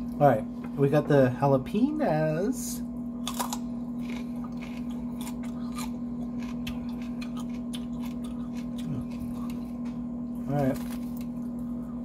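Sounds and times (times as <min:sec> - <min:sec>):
steady low hum: 0:00.0 - 0:12.0
crunchy chewing: 0:03.2 - 0:12.0.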